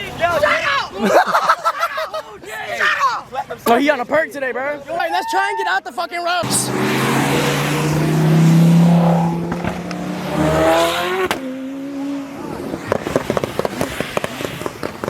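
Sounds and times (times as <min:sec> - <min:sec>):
car engine pulling hard: 0:06.4 - 0:15.0
exhaust crackles and pops: 0:07.4 - 0:11.5, 0:12.4 - 0:15.0.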